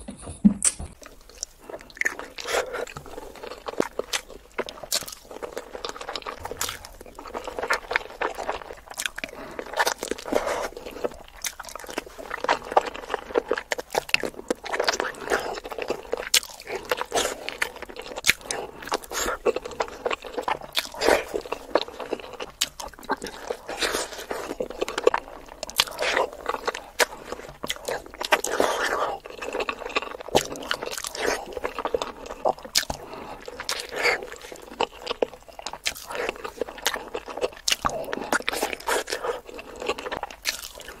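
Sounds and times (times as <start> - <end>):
mouth clicks and smacks: 0.4 - 12.8
chewing and biting eggs: 0.6 - 41.0.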